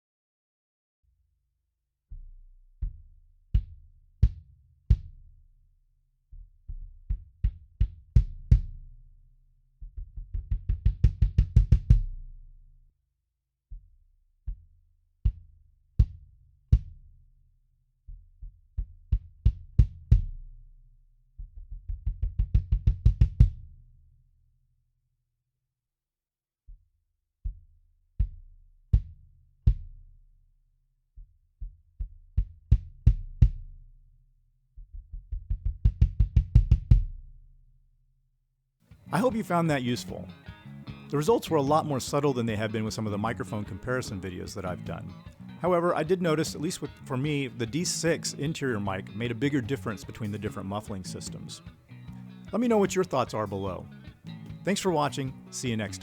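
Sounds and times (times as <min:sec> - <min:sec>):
muffled kick drum thuds: 0:10.2 - 0:12.2, 0:22.0 - 0:23.6, 0:35.2 - 0:37.2.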